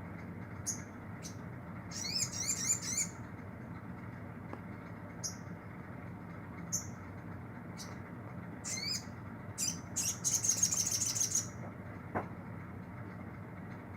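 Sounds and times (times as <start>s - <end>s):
steady low hum: 0.0s - 13.9s
bird chirping and trilling: 0.6s - 3.2s, 6.7s - 7.0s, 8.6s - 11.6s.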